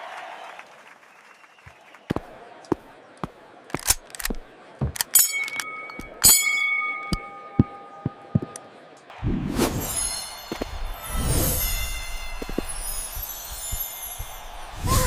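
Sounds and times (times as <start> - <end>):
bell-like metallic dings: 5.1 - 8.6, 9.8 - 14.9.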